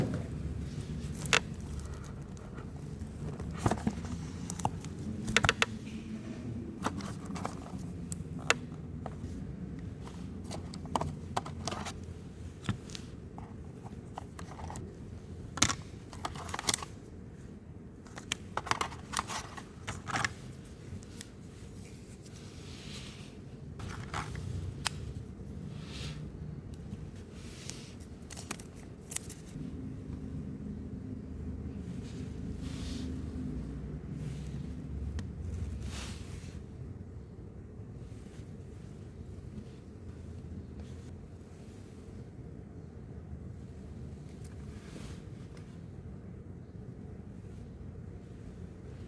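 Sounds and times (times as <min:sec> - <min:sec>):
cardboard and plastic packaging handled: 0:00.3 - 0:05.9, 0:06.8 - 0:17.0, 0:18.0 - 0:26.1, 0:26.9 - 0:29.6.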